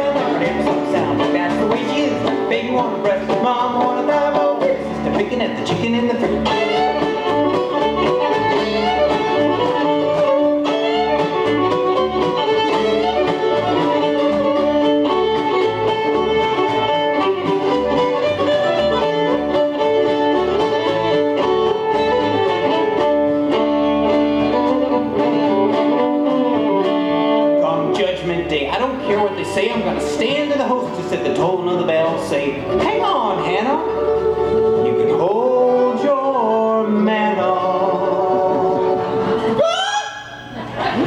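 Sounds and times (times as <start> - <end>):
strummed acoustic guitar: 0.0 - 39.6
fiddle playing long notes: 5.9 - 31.3, 32.4 - 39.7.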